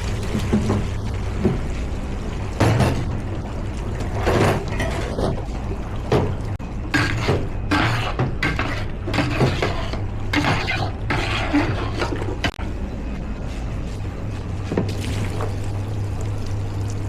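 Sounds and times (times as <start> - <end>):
steady low hum: 0.0 - 17.0
utensils and pans clattering: 4.1 - 12.6.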